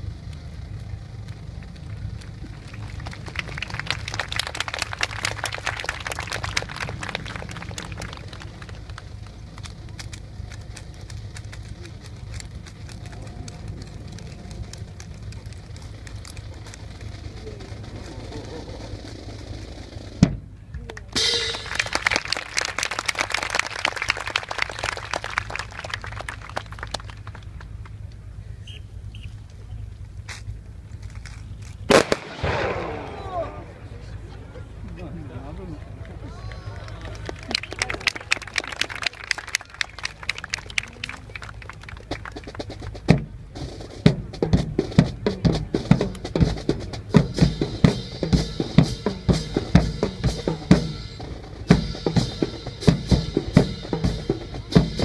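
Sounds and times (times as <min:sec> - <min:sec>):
low wind rumble: 0:00.0 - 0:55.0
audience clapping: 0:01.2 - 0:18.5, 0:20.7 - 0:28.2, 0:34.8 - 0:43.3
sharp thump: 0:20.2 - 0:20.5.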